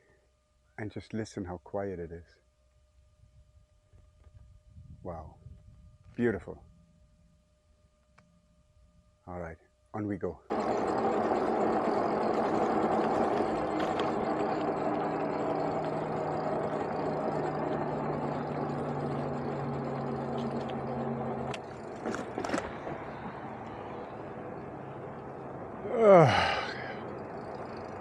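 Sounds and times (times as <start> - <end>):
low electric motor hum: 0.0 - 28.0
wind and road rush: 10.5 - 28.0.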